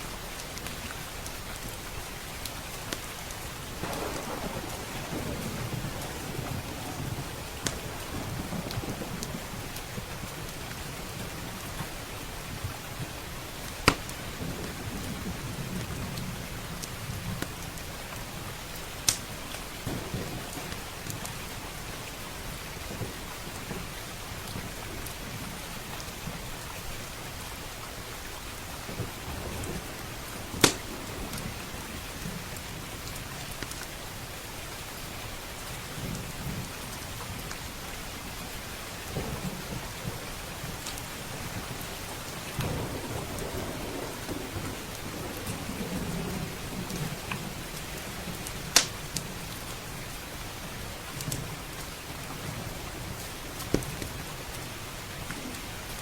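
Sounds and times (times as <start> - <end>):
steady rain: 0.0 - 56.0
wood fire crackling: 0.2 - 16.1, 16.8 - 25.4, 28.5 - 34.3, 36.9 - 56.0
low rolling thunder: 3.6 - 13.2, 19.8 - 26.4, 28.8 - 33.1, 38.9 - 50.1.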